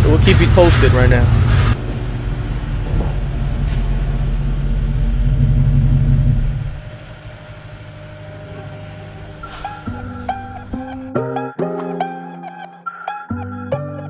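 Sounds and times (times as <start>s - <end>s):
vehicle engine rumbling: 0.0s - 11.2s.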